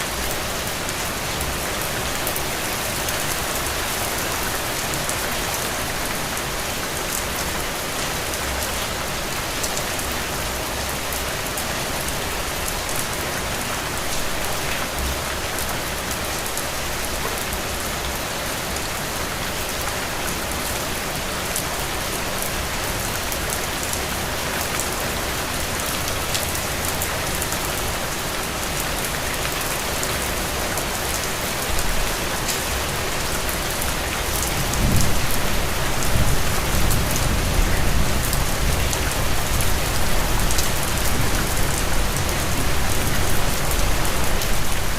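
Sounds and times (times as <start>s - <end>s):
heavy rain falling: 0.0s - 44.9s
low rumble of thunder: 34.5s - 39.4s.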